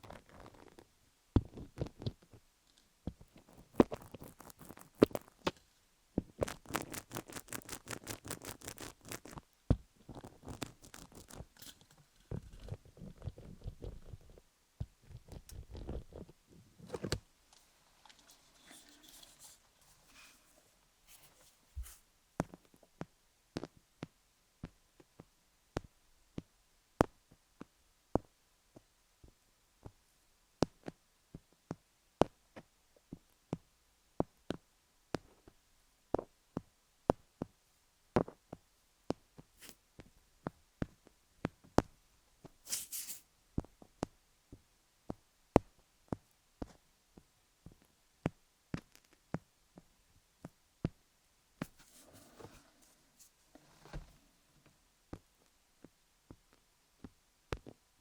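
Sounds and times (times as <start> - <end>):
light scratching: 3.3 - 5.6, 6.4 - 9.5, 10.1 - 14.3, 15.0 - 22.0, 42.7 - 43.2, 51.6 - 54.3
brief hiss: 42.7 - 43.3.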